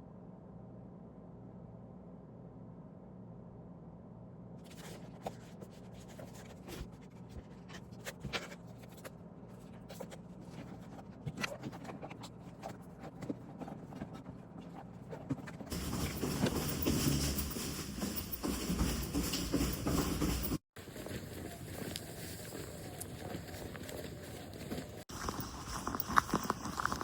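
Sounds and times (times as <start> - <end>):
low room hum: 0.0 - 20.6
light scratching: 4.7 - 20.6.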